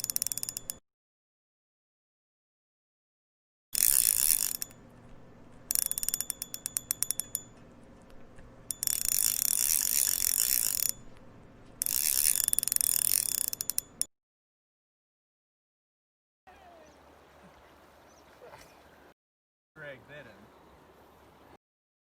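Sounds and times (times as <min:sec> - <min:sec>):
fishing reel drag ratcheting: 0:00.0 - 0:00.8, 0:03.8 - 0:14.1.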